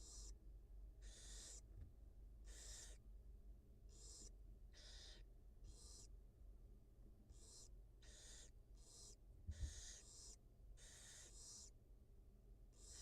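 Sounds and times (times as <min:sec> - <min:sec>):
barn owls hissing calls: 0:00.0 - 0:00.4, 0:01.0 - 0:01.7, 0:02.4 - 0:03.0, 0:03.9 - 0:06.1, 0:07.3 - 0:11.8, 0:12.7 - 0:13.0.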